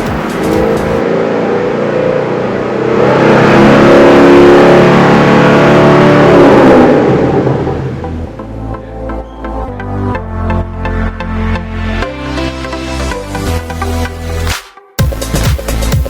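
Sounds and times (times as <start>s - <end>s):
car engine and exhaust: 0.0s - 8.9s.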